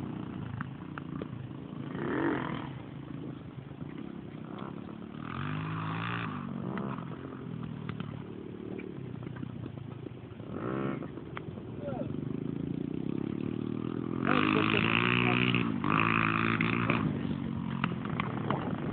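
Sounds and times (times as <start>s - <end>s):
dirt bike engine revving: 0.0s - 18.9s
light clicks and clatter: 6.7s - 11.8s, 16.5s - 18.9s.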